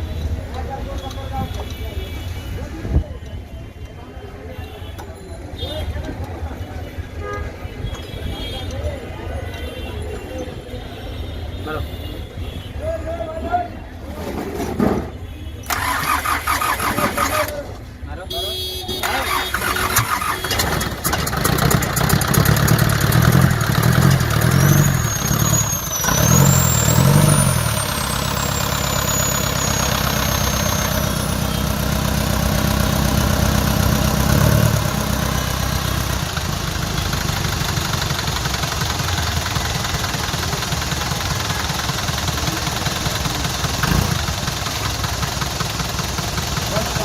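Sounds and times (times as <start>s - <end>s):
engine revving and idling: 19.1s - 47.0s.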